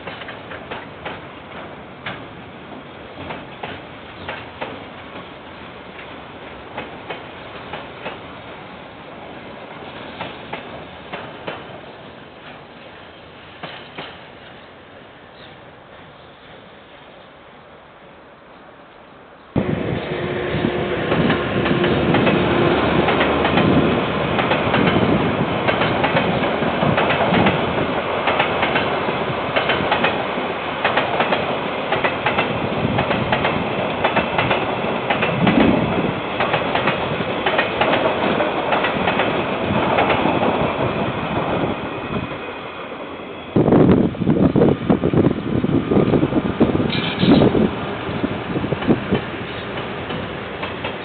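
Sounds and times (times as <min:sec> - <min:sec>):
train wheels clacking over rail joints: 0:00.0 - 0:02.3, 0:03.2 - 0:05.3, 0:06.0 - 0:08.2, 0:10.1 - 0:11.7, 0:13.6 - 0:14.6, 0:20.0 - 0:40.9, 0:46.9 - 0:47.6, 0:48.7 - 0:51.0.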